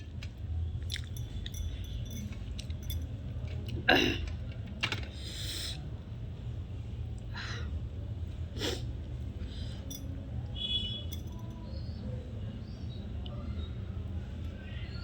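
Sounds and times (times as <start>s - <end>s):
light clinks: 0.8s - 3.7s, 9.7s - 10.4s, 11.0s - 11.8s.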